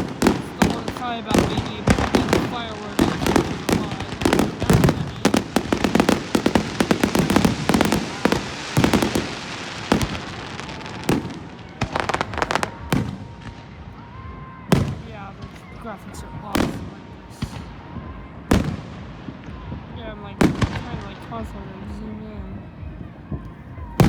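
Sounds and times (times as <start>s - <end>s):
fireworks crackling pops and bangs: 0.0s - 24.0s.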